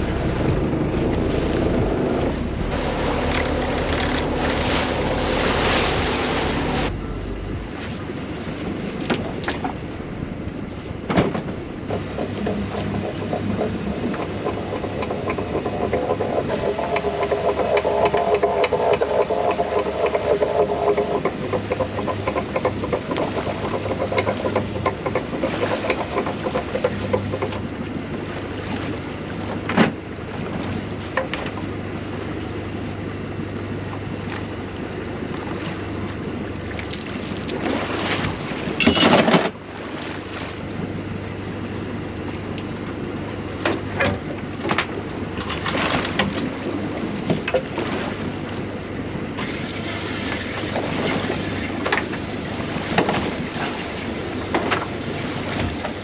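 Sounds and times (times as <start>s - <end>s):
loud rush of wind or splashing: 0.0s - 12.1s
boat engine humming: 0.0s - 56.0s
water noise: 0.0s - 56.0s
wind: 0.0s - 56.0s.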